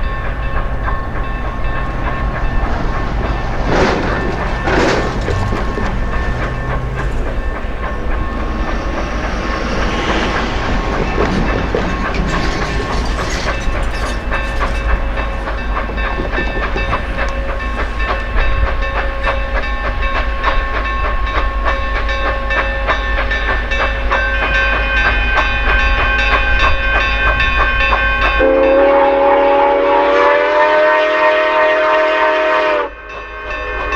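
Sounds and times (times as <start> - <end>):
steam locomotive running: 0.0 - 33.9
steam whistle chord: 28.4 - 33.9.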